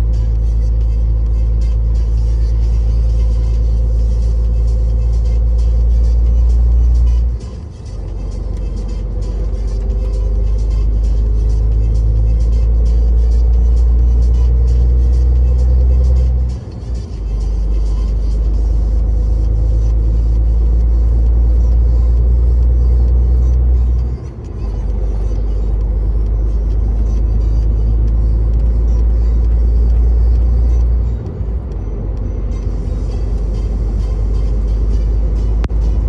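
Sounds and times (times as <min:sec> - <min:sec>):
road noise: 0:00.0 - 0:36.0
truck diesel engine droning: 0:00.0 - 0:36.0.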